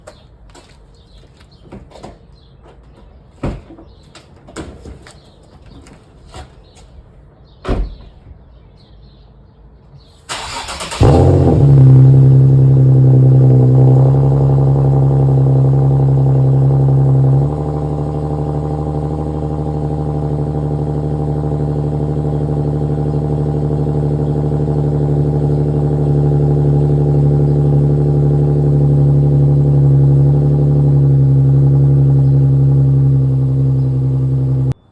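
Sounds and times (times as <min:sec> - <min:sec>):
car engine idling: 0:10.3 - 0:34.8.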